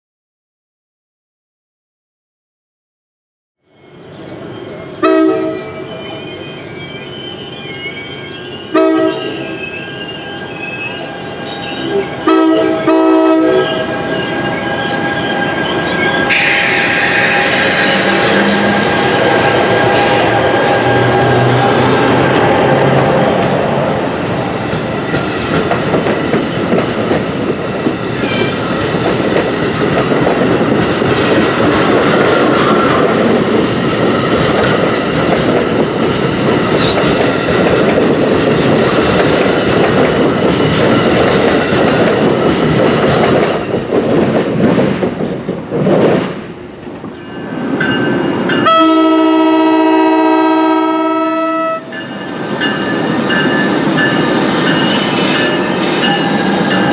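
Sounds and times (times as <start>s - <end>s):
multi-tone train horn: 5.0s - 5.8s, 8.7s - 9.6s, 11.0s - 14.6s, 16.2s - 23.3s, 48.6s - 52.0s
train wheels clattering on rails: 23.0s - 48.8s.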